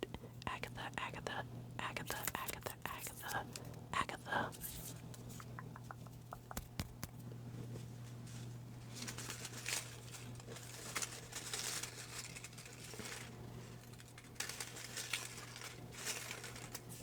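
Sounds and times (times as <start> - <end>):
steady low hum: 0.0 - 11.5
paper slips crinkling: 1.9 - 3.7, 9.0 - 17.0.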